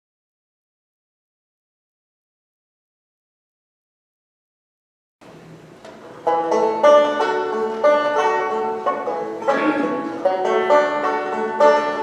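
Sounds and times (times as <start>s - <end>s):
plucked string melody: 5.9s - 12.0s.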